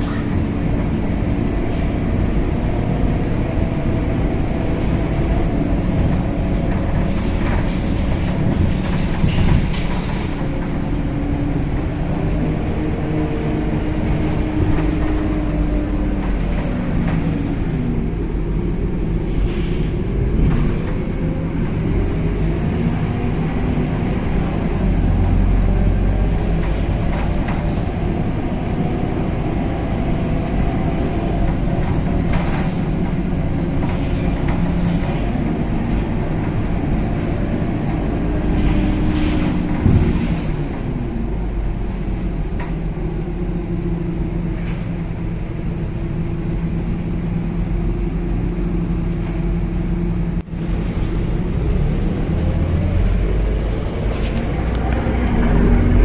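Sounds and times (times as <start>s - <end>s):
bus engine droning: 0.0s - 56.0s.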